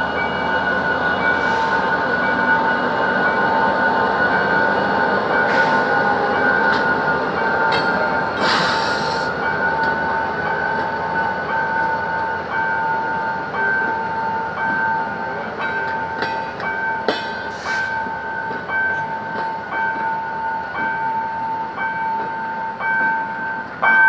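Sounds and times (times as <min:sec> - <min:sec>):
diesel locomotive hauling train: 0:00.0 - 0:24.0.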